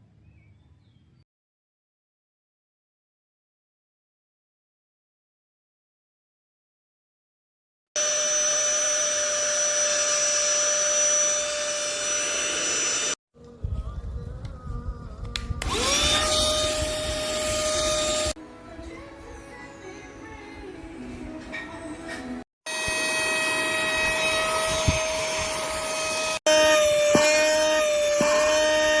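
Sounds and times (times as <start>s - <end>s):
blower motor whining: 8.0s - 13.2s, 15.1s - 18.4s, 22.7s - 29.0s.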